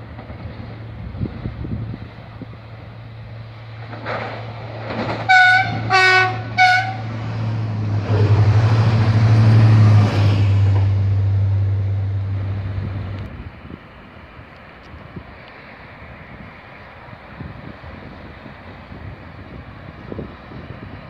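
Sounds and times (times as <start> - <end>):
train horn blasts: 5.2 - 7.2.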